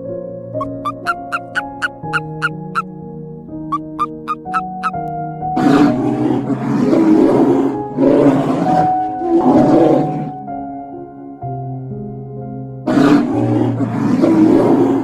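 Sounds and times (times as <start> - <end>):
background music: 0.0 - 15.0
big cat roaring: 5.6 - 10.3, 12.9 - 15.0.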